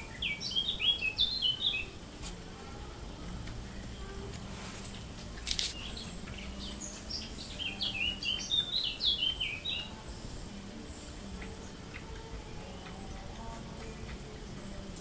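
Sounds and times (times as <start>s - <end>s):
songbird chirping: 0.0s - 15.0s
scratchy rustle: 4.3s - 6.0s.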